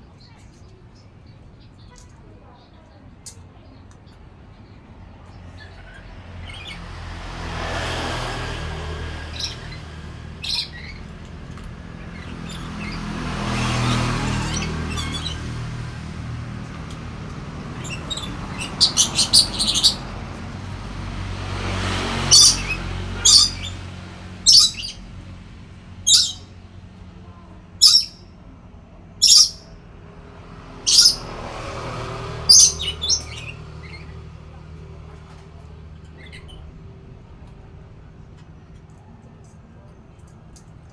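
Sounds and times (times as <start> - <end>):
parrot shrill calls: 10.4 - 11.1, 13.8 - 15.6, 17.8 - 20.1, 22.2 - 25.0, 26.0 - 26.5, 27.8 - 28.2, 29.2 - 29.7, 30.9 - 31.3, 32.5 - 34.1.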